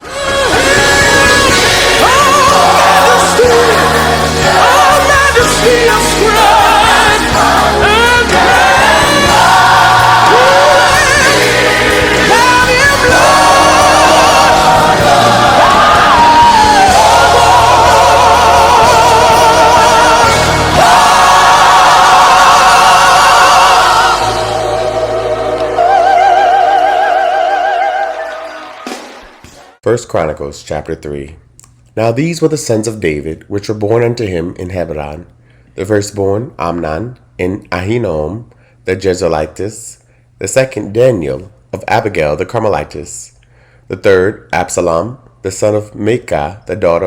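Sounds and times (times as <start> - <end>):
gospel song with choir: 0.0 - 29.8.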